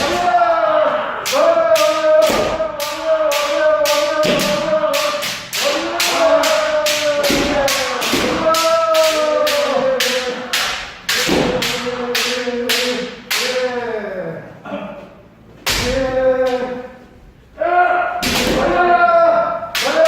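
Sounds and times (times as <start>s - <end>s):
people shouting together: 0.0s - 14.3s, 17.6s - 20.0s
sharp knocks of strikes and stamping: 1.3s - 9.2s, 10.0s - 12.9s.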